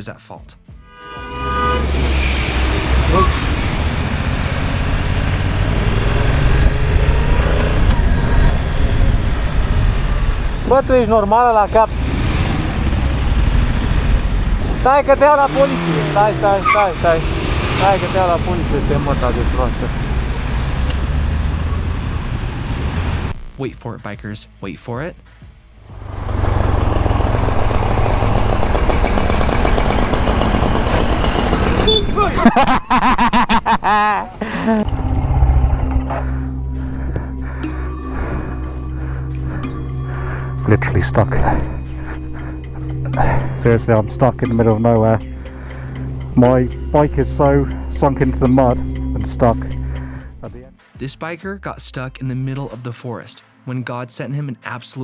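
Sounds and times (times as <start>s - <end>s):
traffic: 0.8s - 23.7s, 25.3s - 50.7s
motorcycle engine running: 3.1s - 22.3s, 25.9s - 32.4s
wind on microphone: 6.2s - 10.7s.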